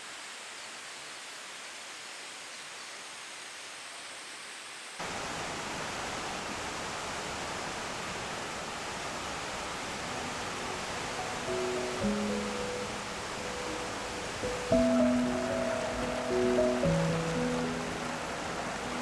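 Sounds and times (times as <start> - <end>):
steady rushing outdoor ambience: 7.0 - 19.0.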